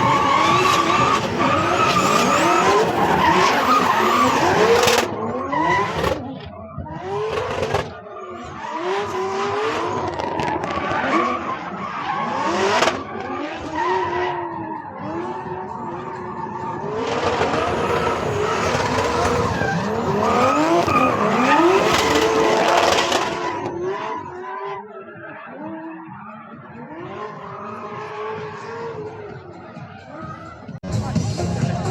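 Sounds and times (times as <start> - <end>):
car engine revving hard: 0.0 - 24.9.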